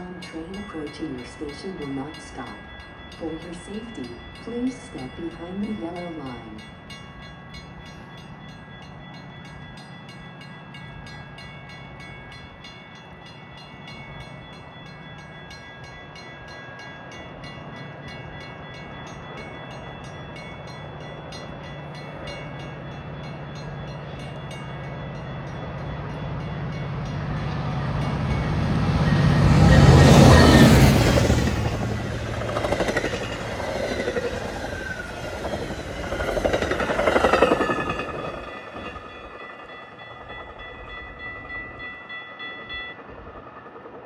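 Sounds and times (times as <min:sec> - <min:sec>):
diesel train engine drone: 0:16.2 - 0:44.0
fast regular ringing tick: 0:30.0 - 0:43.0.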